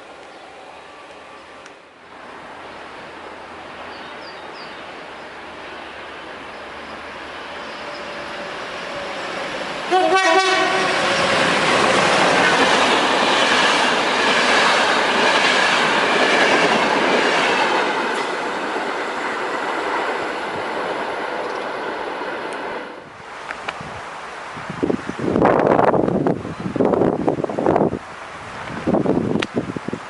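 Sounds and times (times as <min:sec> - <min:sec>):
train running past: 0:00.0 - 0:29.1
train horn blast: 0:08.2 - 0:11.6.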